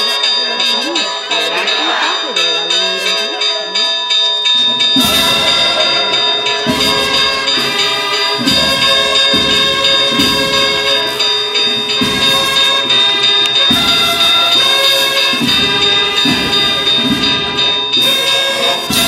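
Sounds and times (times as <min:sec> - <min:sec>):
held brass notes: 0:00.0 - 0:19.0
drums: 0:04.3 - 0:19.0.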